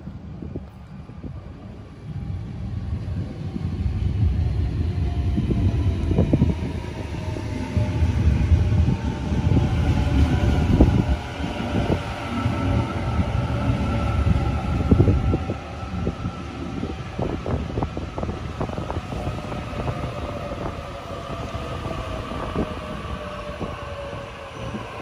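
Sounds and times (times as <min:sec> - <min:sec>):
electric train whine: 0:00.0 - 0:25.0
low train rumble: 0:00.0 - 0:25.0.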